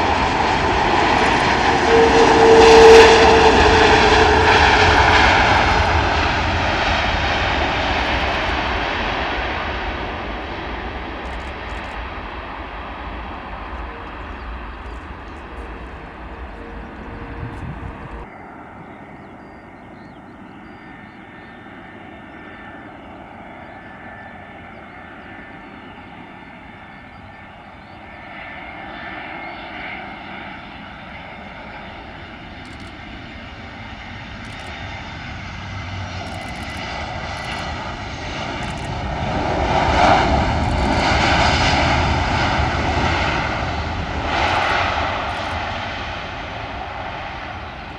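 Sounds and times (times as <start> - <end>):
low rumble: 0.0 - 18.3
jet airliner engines whine: 0.0 - 47.9.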